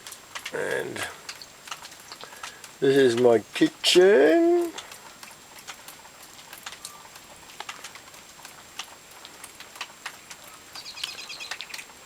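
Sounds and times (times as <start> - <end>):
rain dripping: 0.0 - 12.0
bird chirping: 10.5 - 11.9.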